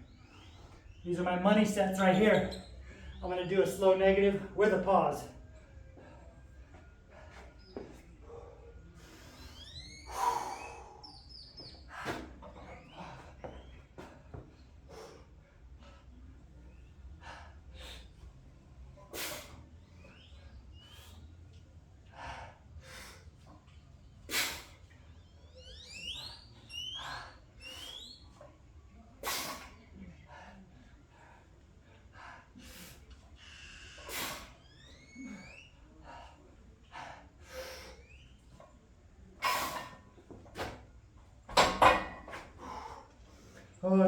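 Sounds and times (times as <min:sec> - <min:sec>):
man breathing hard: 0:10.1 - 0:11.1, 0:22.0 - 0:23.4.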